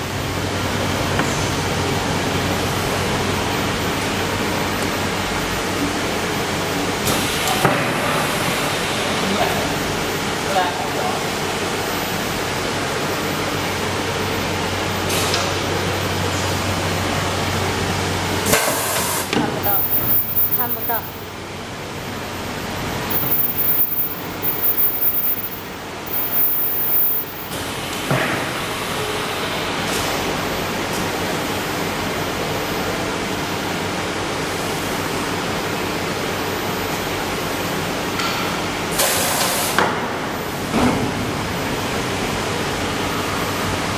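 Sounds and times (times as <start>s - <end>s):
welding machine running: 19.6s - 21.3s, 23.1s - 27.6s
low electrical hum: 19.6s - 27.7s.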